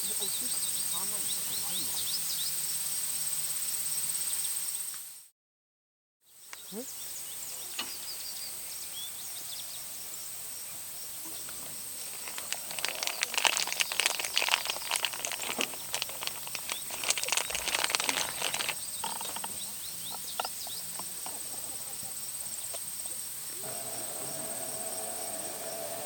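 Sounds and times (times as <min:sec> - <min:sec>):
wood fire crackling: 0:11.5 - 0:19.4.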